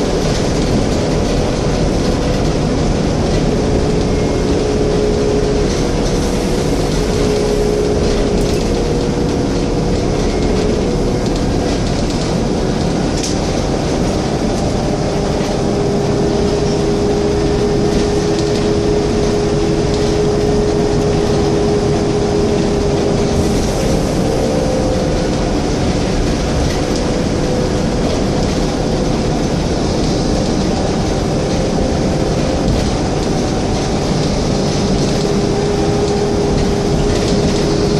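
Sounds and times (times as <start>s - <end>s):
bus diesel engine running: 0.0s - 37.9s
high whine: 0.0s - 37.9s
road rumble: 0.0s - 37.9s.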